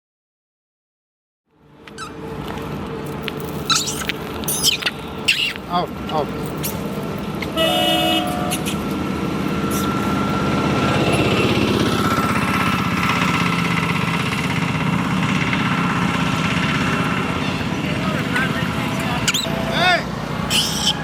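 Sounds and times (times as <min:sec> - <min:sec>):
vehicle engine running: 0:01.5 - 0:21.0
brief steady tone: 0:07.6 - 0:12.2.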